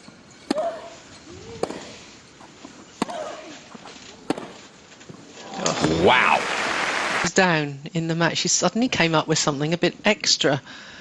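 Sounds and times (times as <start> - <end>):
racket striking tennis ball: 0.5 - 0.9, 1.5 - 2.0, 3.0 - 4.7
player grunting: 5.6 - 6.7.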